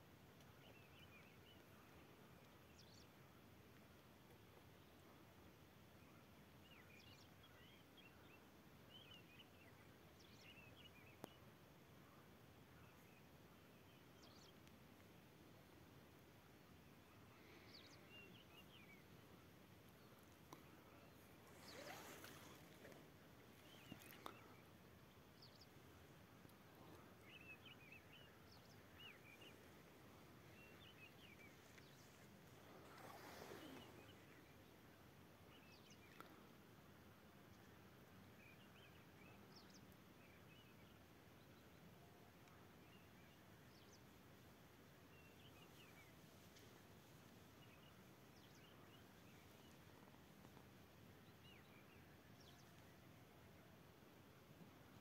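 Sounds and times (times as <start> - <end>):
low steady hiss: 0.0 - 55.0
faint small bird chirps: 20.3 - 23.0, 26.8 - 34.7
small bird chirping: 20.4 - 23.0.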